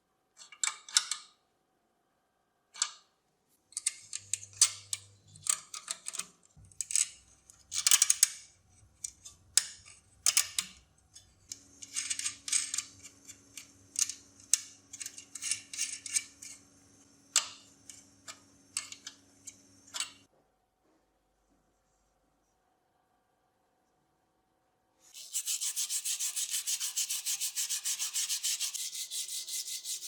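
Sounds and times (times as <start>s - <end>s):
tools clicking on metal parts: 3.7s - 8.4s, 9.0s - 16.6s
tools scraping metal parts: 3.7s - 16.7s.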